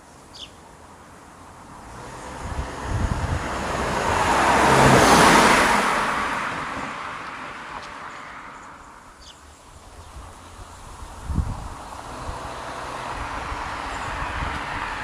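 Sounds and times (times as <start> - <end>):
car driving past: 1.8 - 8.8, 11.6 - 15.0.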